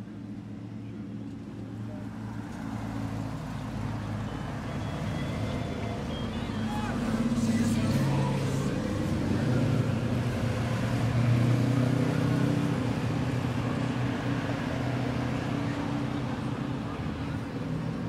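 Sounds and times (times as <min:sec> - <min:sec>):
cars driving by: 0:00.0 - 0:18.0.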